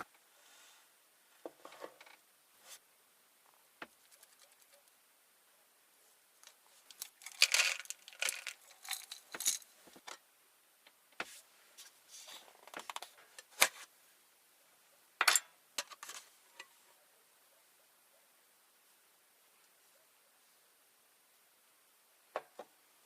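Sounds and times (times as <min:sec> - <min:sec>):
small objects clicking and clinking: 0:06.4 - 0:10.2.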